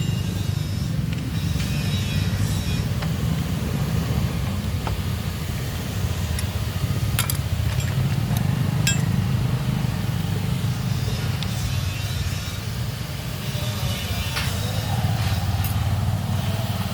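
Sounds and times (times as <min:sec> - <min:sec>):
low mechanical rumble: 0:00.0 - 0:16.9
metallic clinks of tools: 0:07.2 - 0:09.2.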